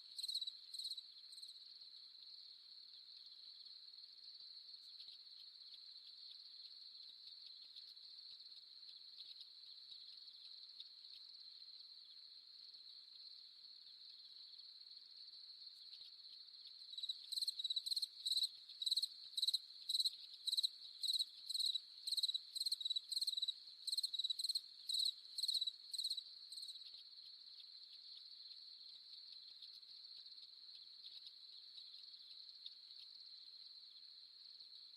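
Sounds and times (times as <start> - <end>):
cricket chirping loudly: 0.0 - 1.5, 15.8 - 34.0
crickets trilling: 15.7 - 34.1.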